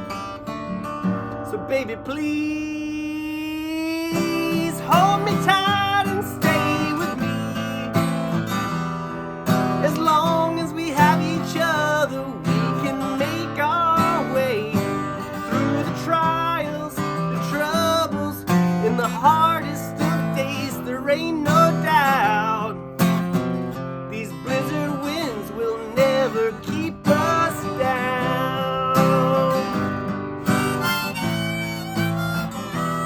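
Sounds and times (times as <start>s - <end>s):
acoustic guitar strumming: 0.0s - 33.0s
sliding melody line: 28.6s - 33.0s.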